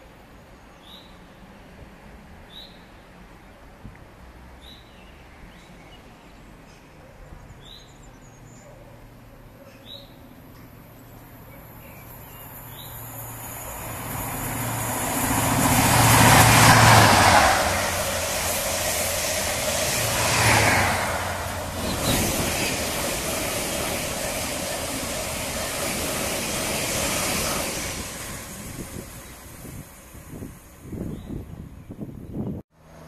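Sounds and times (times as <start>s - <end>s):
train passing at speed: 0.0s - 32.2s
birds chirping: 17.9s - 29.6s.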